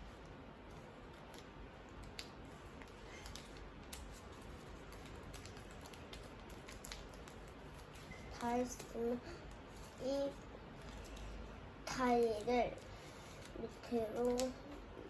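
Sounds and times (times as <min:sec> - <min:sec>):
paper being folded and creased: 0:00.7 - 0:09.0.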